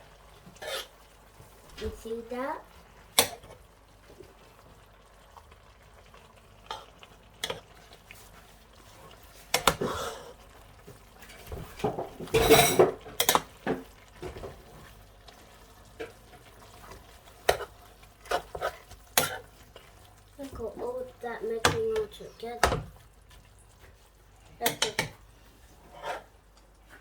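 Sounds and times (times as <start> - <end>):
spoon stirring soup in pot: 6.6 - 27.0
spoon knocking against pot: 21.6 - 22.9, 24.6 - 25.2.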